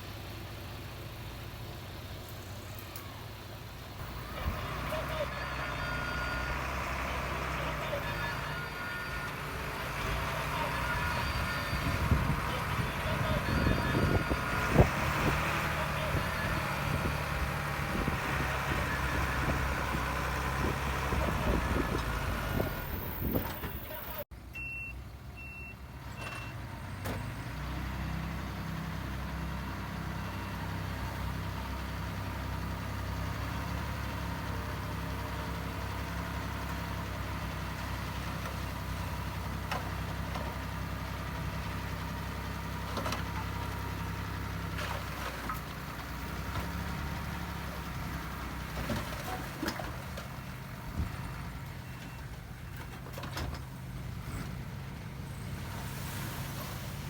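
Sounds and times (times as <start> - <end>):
diesel machinery engine drone: 0.0 - 57.0
reversing beeps: 4.9 - 6.7, 7.6 - 9.4, 10.1 - 14.8, 24.1 - 26.6.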